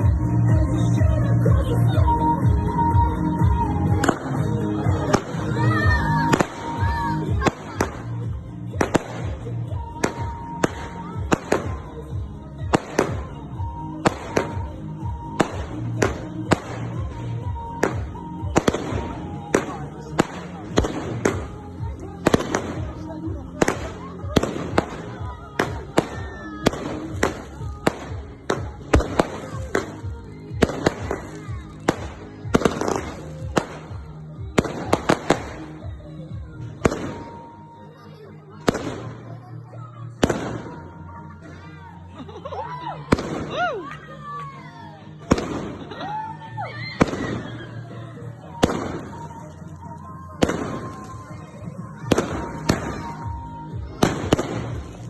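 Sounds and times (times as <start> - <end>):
background music: 0.0 - 55.0
fireworks banging: 8.7 - 11.8, 14.0 - 21.6, 22.2 - 35.7, 45.3 - 45.9, 47.0 - 47.6, 48.5 - 49.6, 50.4 - 51.3, 52.0 - 53.4, 54.0 - 55.0.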